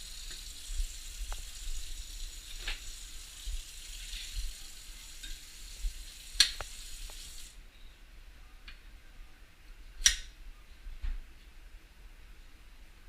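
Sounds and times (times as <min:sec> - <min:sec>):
steady hiss: 0:00.0 - 0:07.6.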